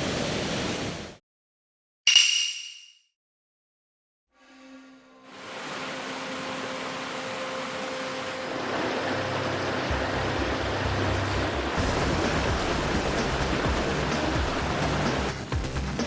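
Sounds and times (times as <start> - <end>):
mountain stream rushing: 5.3 - 15.5.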